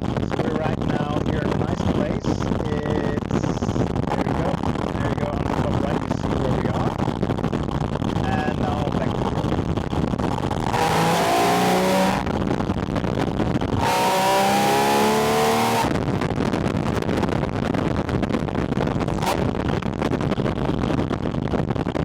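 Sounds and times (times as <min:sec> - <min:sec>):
road and wind noise: 0:00.0 - 0:22.0
car engine accelerating hard: 0:08.9 - 0:12.9, 0:13.5 - 0:16.1, 0:19.1 - 0:19.8.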